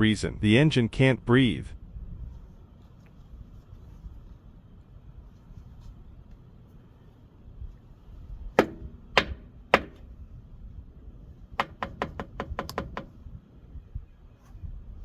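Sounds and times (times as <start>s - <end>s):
sharp knocks on hard object: 8.6s - 10.0s, 11.6s - 13.1s.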